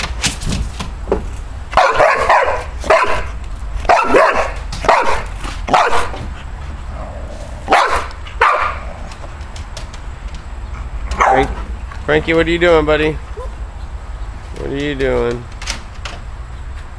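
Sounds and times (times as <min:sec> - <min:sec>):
dog barking: 0:01.8 - 0:06.2, 0:07.7 - 0:08.9, 0:11.2 - 0:11.6.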